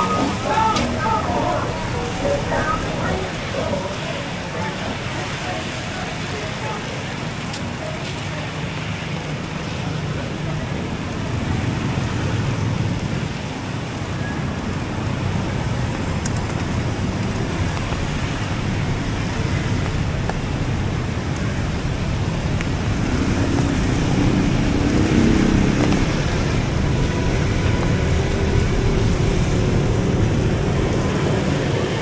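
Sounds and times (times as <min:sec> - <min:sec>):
vehicle engine droning: 0:00.0 - 0:07.2, 0:14.6 - 0:32.0
road traffic roar: 0:00.0 - 0:32.0.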